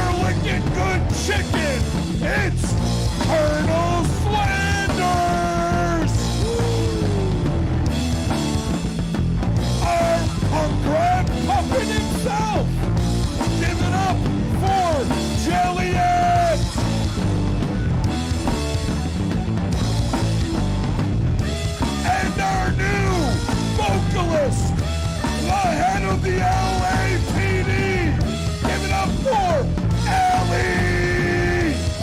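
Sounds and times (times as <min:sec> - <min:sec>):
person singing: 0:00.0 - 0:07.6, 0:21.8 - 0:24.8, 0:25.4 - 0:32.0
rock band playing: 0:00.0 - 0:32.0.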